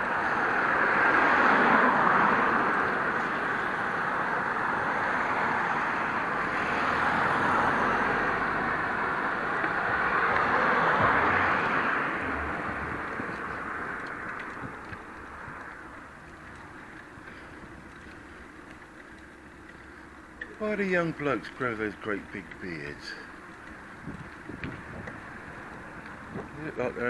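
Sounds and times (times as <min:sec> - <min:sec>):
rushing road noise: 0:00.0 - 0:27.0.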